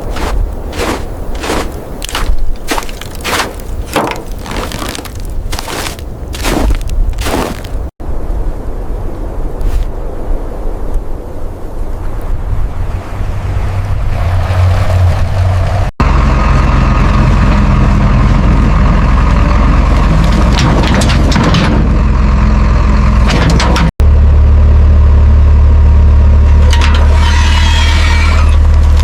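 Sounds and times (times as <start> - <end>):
heavy vehicle engine rumbling: 12.8 - 29.0.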